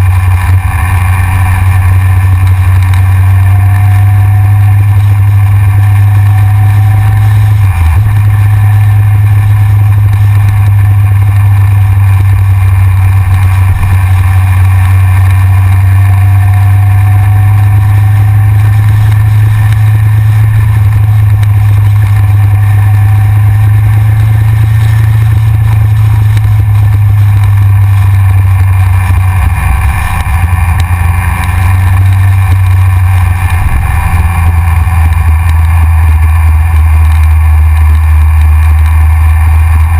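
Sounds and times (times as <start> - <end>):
motorcycle engine droning: 0.0 - 39.9
wind noise on microphone: 0.0 - 39.9.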